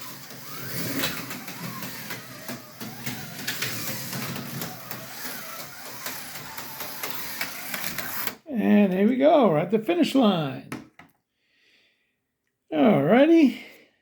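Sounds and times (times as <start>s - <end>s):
electric motor whirring: 0.0s - 8.4s
small clicks on rails: 0.0s - 8.4s.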